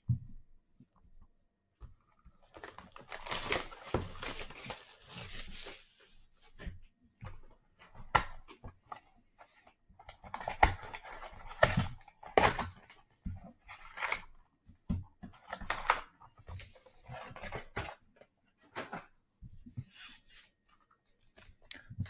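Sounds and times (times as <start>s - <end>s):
wrapping tearing and crinkling: 2.4s - 6.1s
cardboard being handled: 2.4s - 6.8s.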